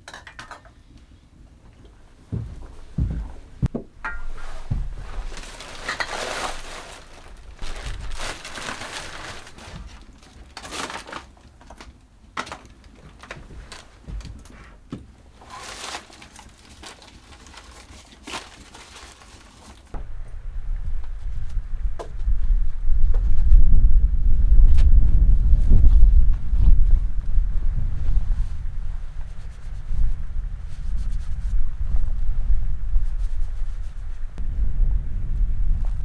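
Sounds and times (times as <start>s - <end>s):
rustling and crinkling: 1.5s - 23.8s, 24.6s - 34.5s, 35.2s - 36.0s
low wind rumble: 1.9s - 10.2s, 20.0s - 36.0s.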